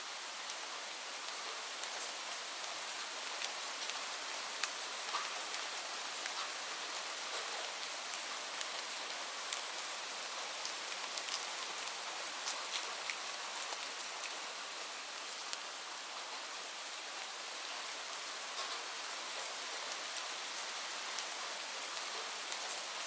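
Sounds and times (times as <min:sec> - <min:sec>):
rain falling on leaves: 0:00.0 - 0:23.0.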